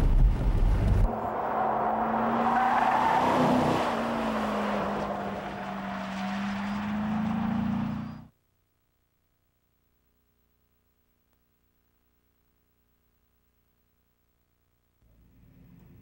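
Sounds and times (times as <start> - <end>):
car engine running at speed: 0.0 - 1.4, 3.6 - 8.3
road and tyre noise: 0.0 - 8.4, 15.0 - 16.0.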